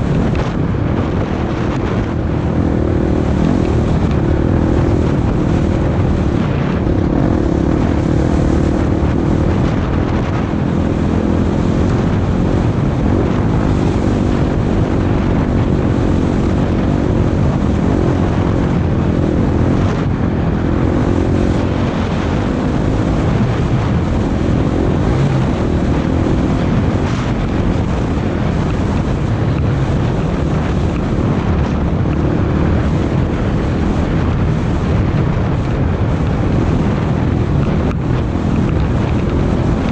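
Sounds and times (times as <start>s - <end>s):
off-road vehicle engine running: 0.0s - 39.9s
wind noise on microphone: 0.0s - 39.9s.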